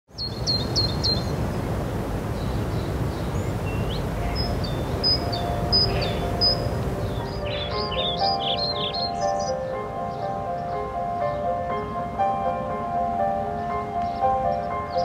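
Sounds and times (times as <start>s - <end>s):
small birds chirping: 0.1s - 12.2s, 13.4s - 15.0s
faint sustained music tones: 3.2s - 15.0s.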